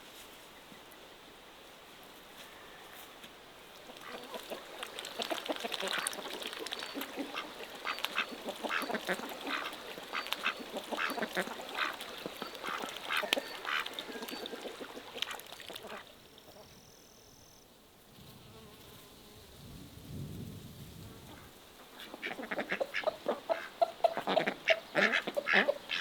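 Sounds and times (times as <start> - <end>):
birds making harsh calls: 4.0 - 15.2.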